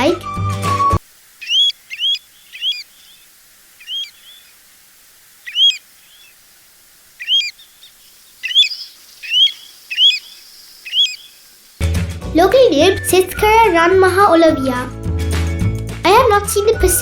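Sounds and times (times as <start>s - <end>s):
plover whistled calls: 0.0s - 4.6s, 5.3s - 11.8s.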